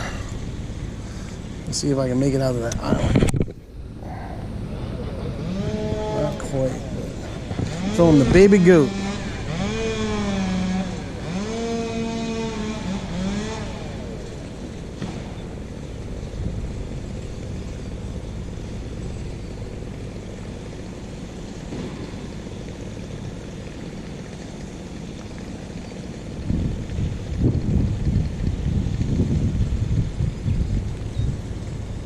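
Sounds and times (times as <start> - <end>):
wind buffeting microphone: 0.0 - 12.8, 26.2 - 32.0.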